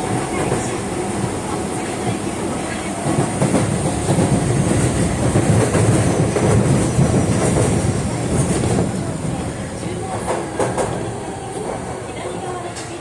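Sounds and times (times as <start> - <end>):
train wheels rumbling on track: 0.0 - 13.0.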